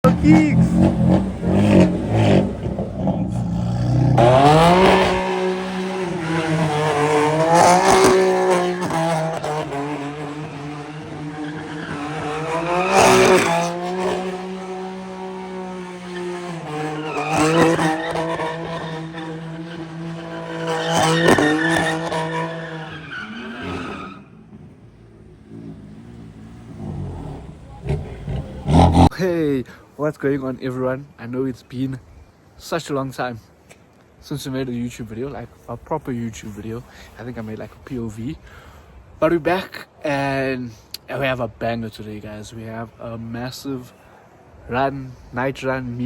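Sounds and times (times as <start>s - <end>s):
car engine revving high: 0.0s - 22.9s, 25.5s - 29.1s
tyres squealing and skidding: 0.0s - 29.1s.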